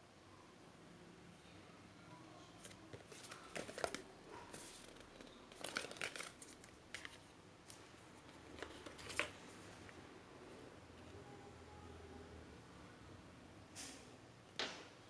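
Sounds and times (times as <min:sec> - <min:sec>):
cd packaging crinkling: 0:03.0 - 0:09.5.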